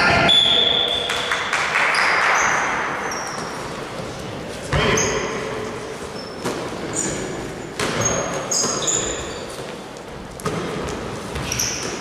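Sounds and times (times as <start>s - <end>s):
sneakers squeaking on floor: 0.0s - 1.2s, 1.9s - 12.0s.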